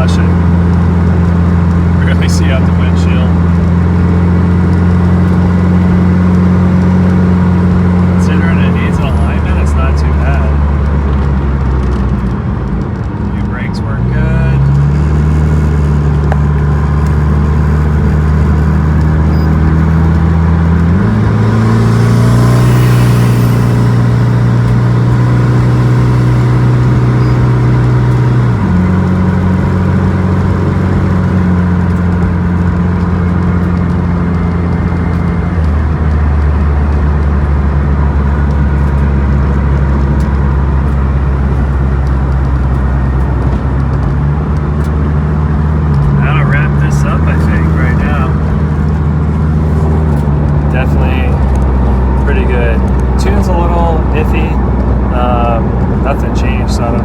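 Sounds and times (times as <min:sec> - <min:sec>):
car engine driving: 0:00.0 - 0:57.0.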